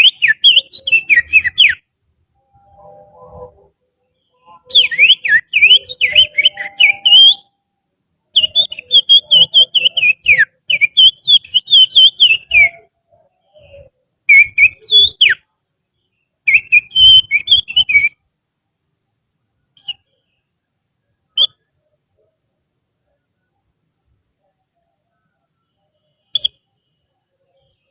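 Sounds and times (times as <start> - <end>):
finger whistling birdsong: 0.0 - 1.8, 4.2 - 7.5, 8.4 - 15.5, 16.5 - 18.2, 26.4 - 26.6.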